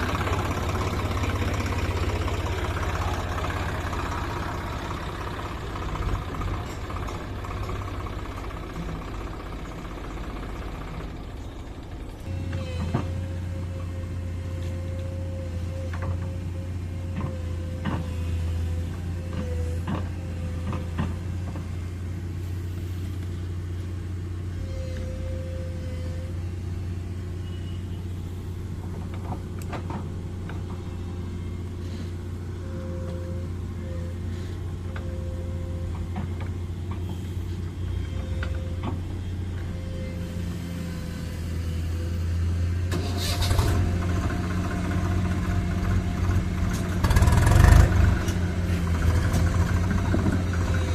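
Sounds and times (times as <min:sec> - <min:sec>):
tractor engine running: 0:00.0 - 0:50.9.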